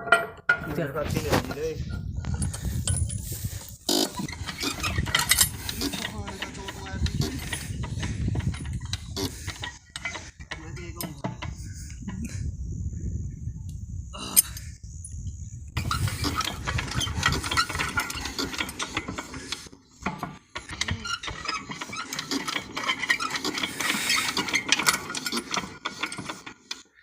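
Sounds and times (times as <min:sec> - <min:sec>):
engine hand-cranked clattering: 0:02.2 - 0:12.2, 0:15.8 - 0:27.0.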